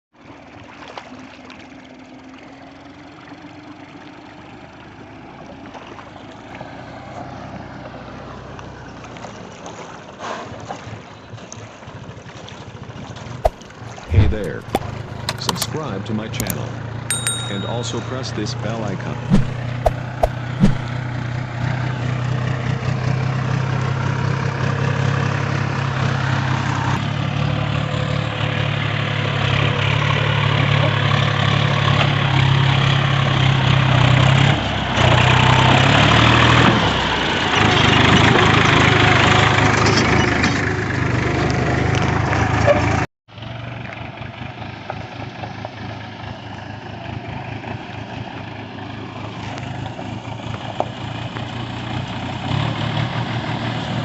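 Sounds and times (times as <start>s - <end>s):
tractor diesel engine labouring: 21.0s - 43.0s.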